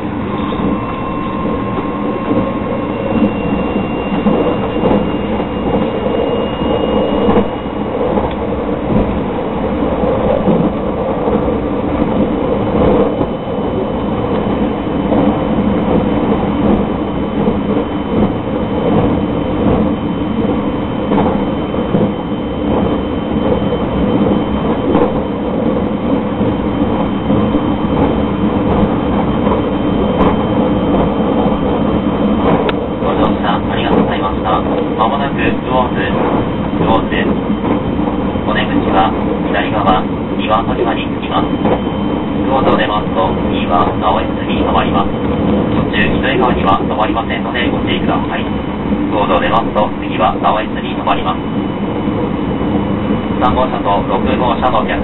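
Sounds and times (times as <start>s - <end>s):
high whine: 0.0s - 55.0s
train wheels rumbling on rail: 0.0s - 55.0s.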